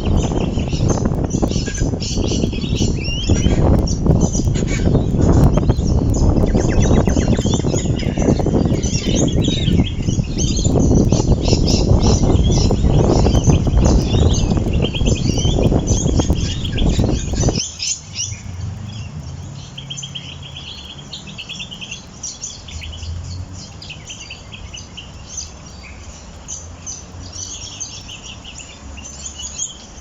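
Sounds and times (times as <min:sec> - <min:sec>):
wind rushing: 0:00.0 - 0:21.1
small birds chirping: 0:00.0 - 0:30.0.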